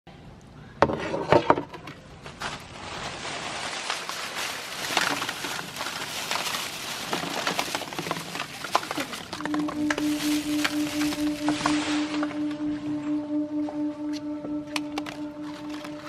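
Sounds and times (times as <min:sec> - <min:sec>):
crisp shells crunching in grinder: 0:03.2 - 0:10.8.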